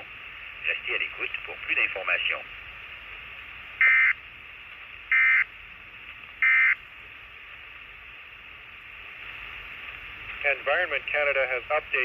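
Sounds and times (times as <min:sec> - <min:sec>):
radio hiss: 0:00.0 - 0:12.0
short buzzing data bursts: 0:05.1 - 0:05.5, 0:06.4 - 0:06.8.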